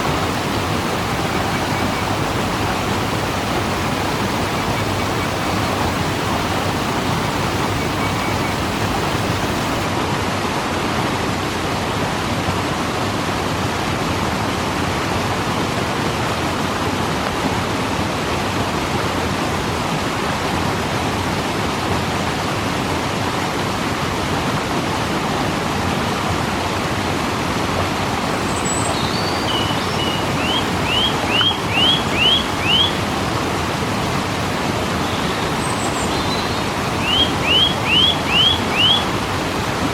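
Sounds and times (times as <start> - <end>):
bird chirping: 0.0 - 9.9, 28.3 - 39.9
waterfall rushing: 0.0 - 10.0, 28.2 - 39.9.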